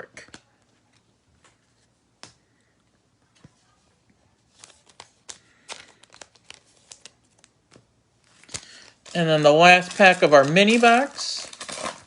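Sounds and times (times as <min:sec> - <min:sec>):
wrapper crinkling and tearing: 0:04.6 - 0:07.5, 0:08.3 - 0:12.0.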